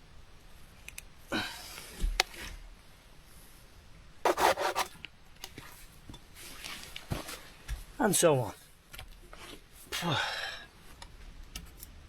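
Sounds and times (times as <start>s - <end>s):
wood scraping on wood: 4.3s - 4.9s.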